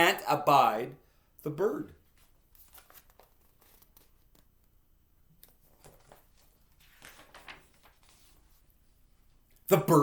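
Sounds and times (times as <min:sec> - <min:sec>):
paper pages rustling: 0:02.0 - 0:08.9.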